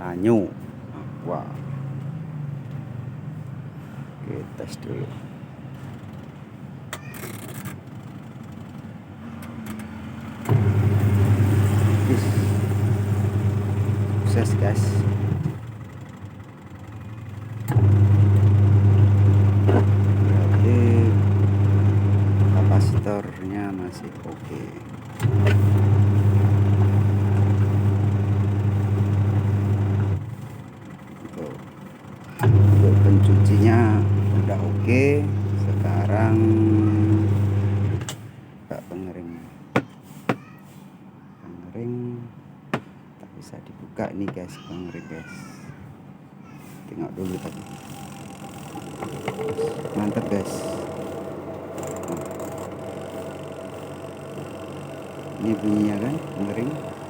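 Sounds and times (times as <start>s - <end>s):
washing machine motor humming: 10.5s - 30.8s, 32.1s - 38.1s, 47.2s - 57.0s.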